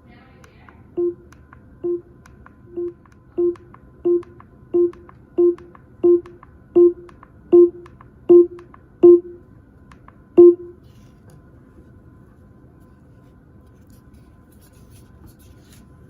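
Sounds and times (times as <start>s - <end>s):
smart speaker beeps: 1.0s - 1.2s, 1.8s - 2.1s, 2.7s - 9.4s, 10.4s - 10.8s.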